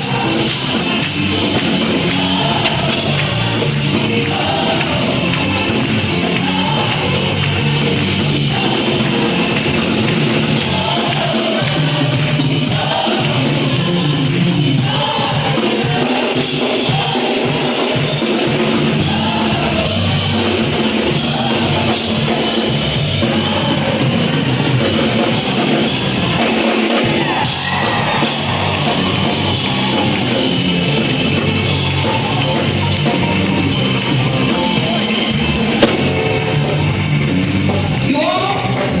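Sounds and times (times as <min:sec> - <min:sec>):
choir singing gospel music: 0:00.0 - 0:39.0
instrumental accompaniment: 0:00.0 - 0:39.0
jingling tambourine: 0:00.0 - 0:39.0.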